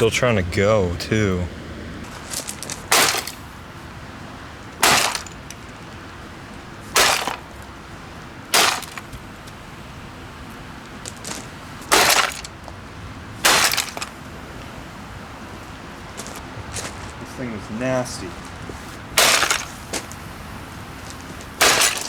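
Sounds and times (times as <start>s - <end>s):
rattling debris: 2.0s - 9.8s, 10.4s - 14.8s, 18.0s - 22.0s
sledgehammer smashing vacuum cleaner: 2.8s - 3.5s, 4.8s - 5.5s, 6.9s - 7.5s, 8.5s - 9.2s, 11.8s - 12.6s, 13.4s - 14.2s, 19.2s - 20.1s, 21.6s - 22.0s.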